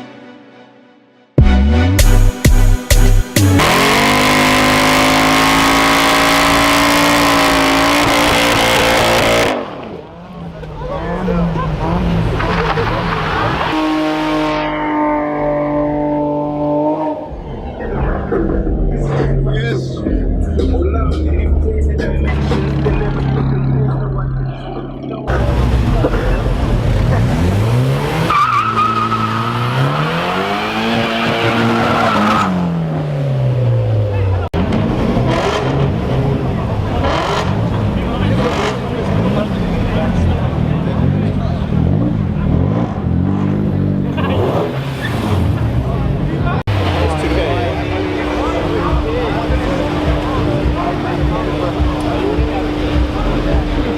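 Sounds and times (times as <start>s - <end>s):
car engine at high revs: 3.3s - 53.9s
tyres squealing: 28.1s - 32.6s.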